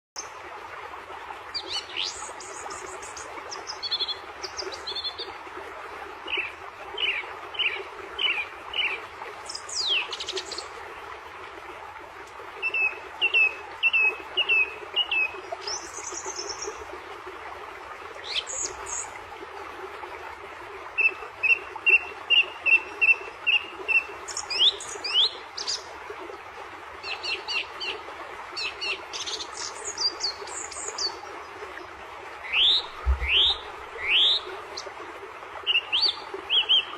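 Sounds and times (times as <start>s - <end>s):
small birds chirping: 32.5s - 34.4s.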